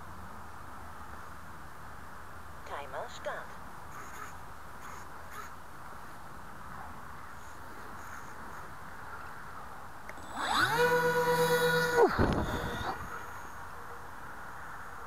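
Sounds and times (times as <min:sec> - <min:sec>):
background hiss: 0:00.0 - 0:15.0
electric motors whining: 0:10.1 - 0:13.3.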